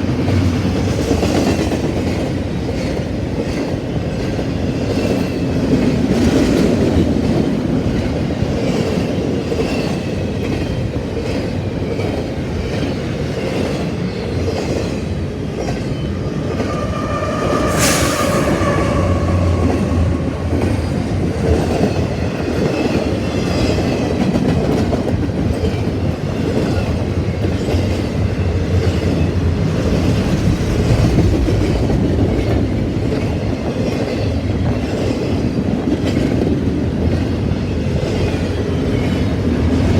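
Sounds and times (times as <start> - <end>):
train rumble: 13.6 - 25.6, 26.2 - 37.2
brief sharp high sound: 15.8 - 22.1.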